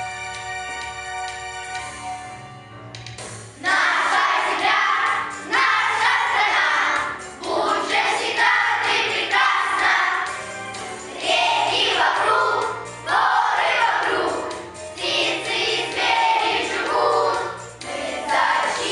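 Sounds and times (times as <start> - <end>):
children singing in unison: 3.6 - 10.3, 11.1 - 18.9.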